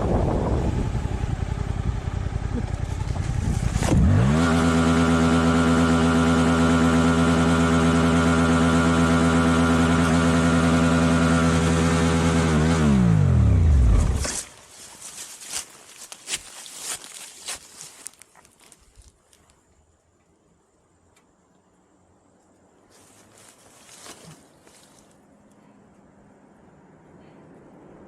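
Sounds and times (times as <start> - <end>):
motorcycle engine revving: 0.0 - 14.5.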